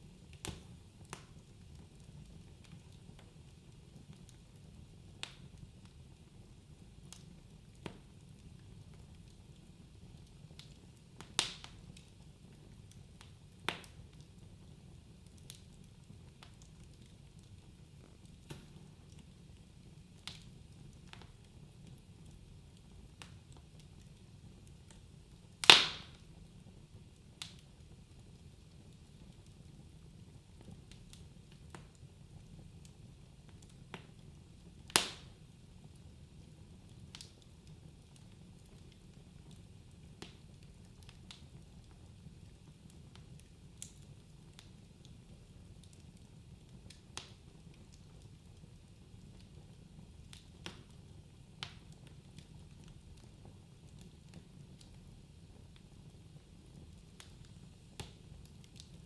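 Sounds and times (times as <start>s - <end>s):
wood fire crackling: 0.0s - 59.0s
loud wood snaps: 18.5s - 18.8s, 25.6s - 26.2s, 34.9s - 35.3s.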